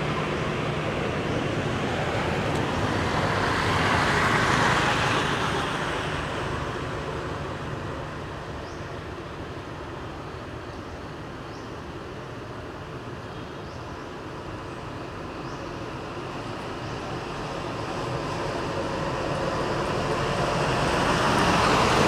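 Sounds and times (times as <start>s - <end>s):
traffic hum: 0.0s - 22.0s
road vehicle passing: 17.0s - 22.0s.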